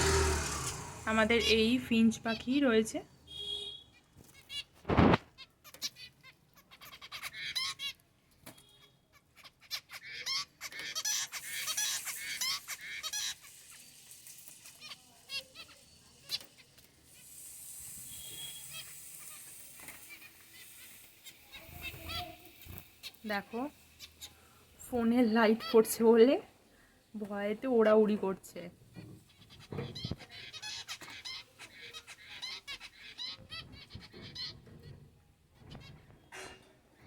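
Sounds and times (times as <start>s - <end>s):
finches chirping: 5.4s - 8.0s, 8.7s - 26.3s, 28.9s - 34.7s.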